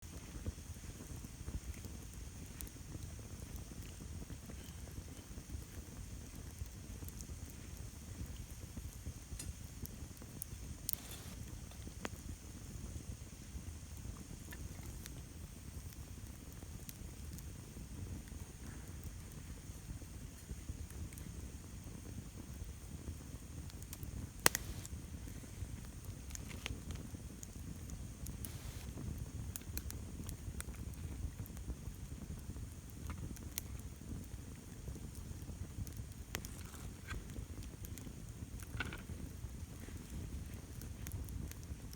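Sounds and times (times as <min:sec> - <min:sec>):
campfire crackling and popping: 0:00.1 - 0:41.9
low steady rumble: 0:27.4 - 0:40.7.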